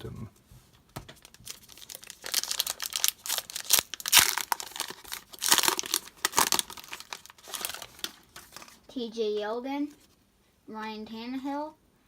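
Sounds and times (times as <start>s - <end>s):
foil wrapper crinkling and tearing: 1.2s - 8.8s.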